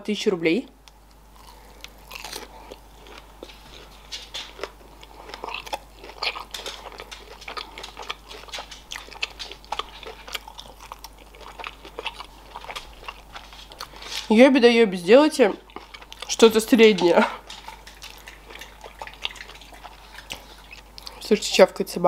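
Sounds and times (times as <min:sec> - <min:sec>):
person chewing with mouth clicks: 0:00.9 - 0:14.3, 0:15.5 - 0:21.5.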